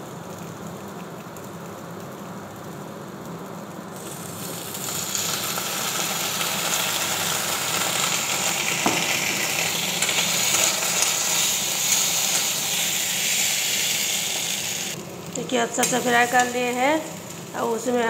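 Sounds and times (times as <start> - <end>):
food sizzling in hot oil: 3.9 - 18.0.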